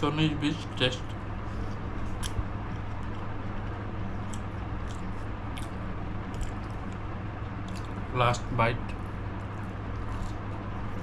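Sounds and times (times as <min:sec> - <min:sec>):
steady low hum: 0:00.0 - 0:11.0
person chewing food: 0:04.1 - 0:07.0, 0:07.6 - 0:08.0, 0:09.5 - 0:10.6.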